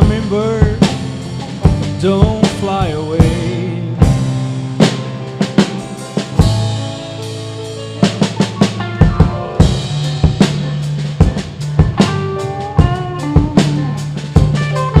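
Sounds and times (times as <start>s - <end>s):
bass notes: 0.0s - 15.0s
drum kit beat: 0.0s - 15.0s
lead instrument melody: 0.1s - 15.0s.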